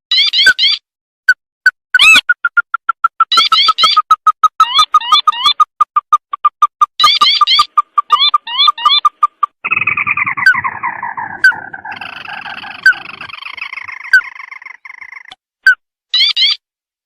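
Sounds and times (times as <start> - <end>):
bird rattling call: 2.0 - 15.3
sharp rising bird notes: 7.0 - 15.3
short bird calls: 7.0 - 15.4.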